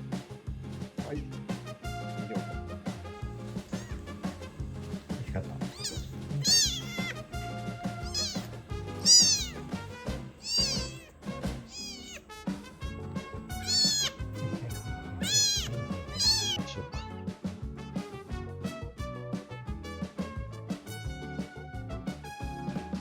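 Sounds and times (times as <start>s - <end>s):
background music: 0.0s - 23.0s
kitten meowing: 3.5s - 4.7s, 5.5s - 12.3s, 13.2s - 17.0s.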